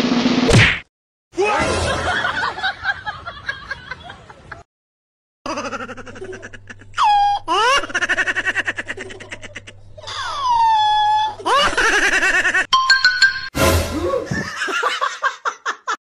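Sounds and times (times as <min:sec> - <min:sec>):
laughter-like voice: 0:01.5 - 0:04.6, 0:05.5 - 0:12.7, 0:14.0 - 0:16.0.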